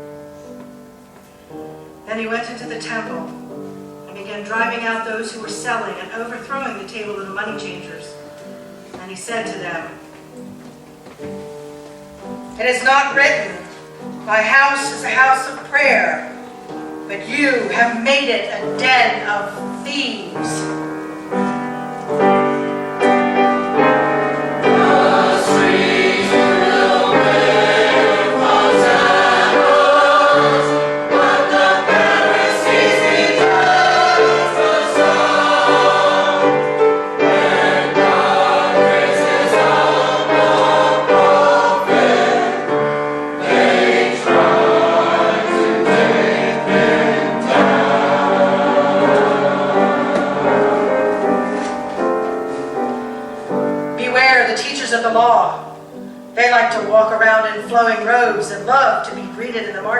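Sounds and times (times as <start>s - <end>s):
choir singing: 22.3s - 52.2s.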